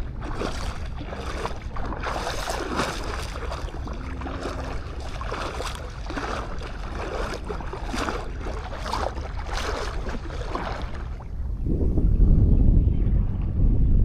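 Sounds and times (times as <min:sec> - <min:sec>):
footsteps crunching on sand: 0:00.0 - 0:10.7
sea wash: 0:00.0 - 0:11.7
wind: 0:00.0 - 0:14.0.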